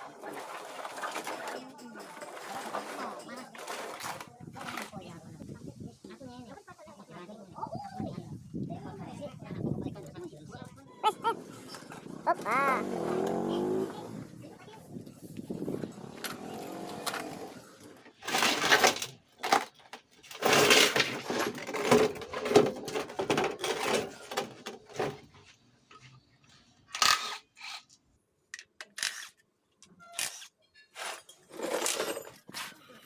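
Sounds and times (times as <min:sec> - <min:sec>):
metal tools clanking: 0:30.7 - 0:32.6.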